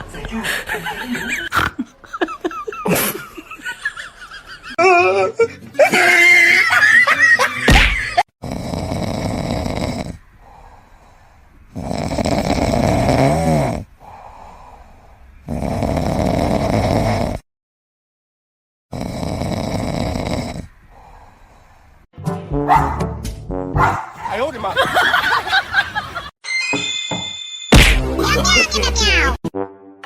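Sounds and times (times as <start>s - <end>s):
pet snoring wheezily: 8.4s - 10.8s, 11.7s - 17.4s, 18.9s - 21.6s.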